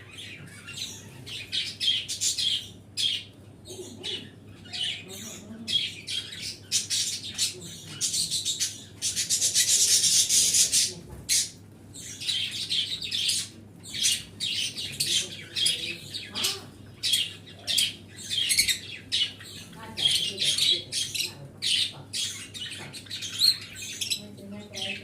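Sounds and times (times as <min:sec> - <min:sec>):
pet birds chirping and chattering: 0:00.0 - 0:25.0.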